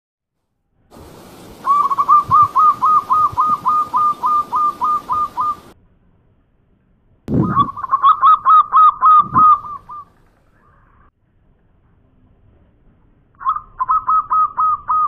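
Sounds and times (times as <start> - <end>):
faint hiss: 0.8 - 5.8
dove calling short even notes: 1.6 - 5.8, 7.3 - 10.9.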